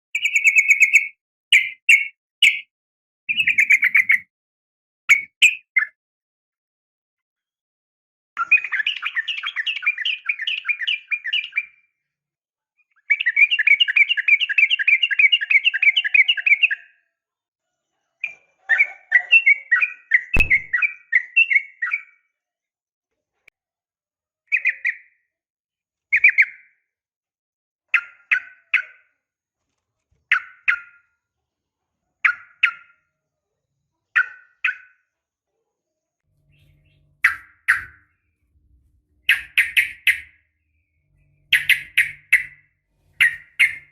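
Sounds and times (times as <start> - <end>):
bird chattering calls: 3.3 - 4.2, 36.4 - 38.0, 39.2 - 40.4, 41.3 - 43.9
sharp click: 20.4 - 20.7.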